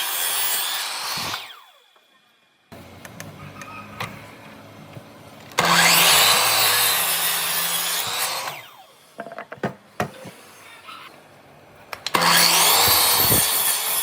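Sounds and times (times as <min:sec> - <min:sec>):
power tool cutting wood: 0:00.0 - 0:09.0, 0:12.1 - 0:14.0.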